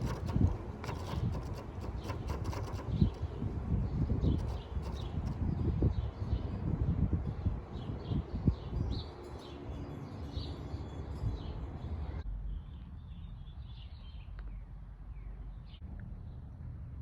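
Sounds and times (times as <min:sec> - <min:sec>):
low outdoor rumble: 0:11.1 - 0:17.0.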